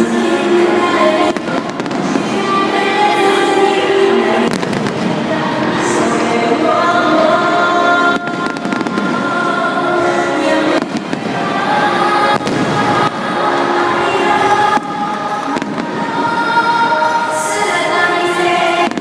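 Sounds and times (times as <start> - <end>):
music with sustained notes: 0.0 - 19.0
fireworks booming and crackling: 1.2 - 2.5, 4.4 - 5.8, 8.1 - 11.6, 12.2 - 17.3, 18.8 - 19.0.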